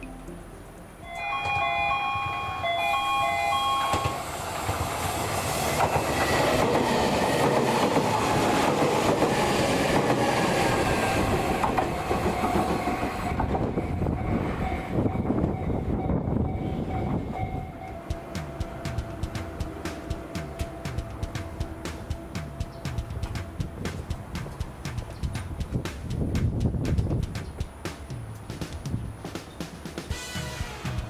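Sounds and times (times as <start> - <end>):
two-note tone: 0.0 - 4.2
train rumble and wheel clatter: 1.2 - 31.0.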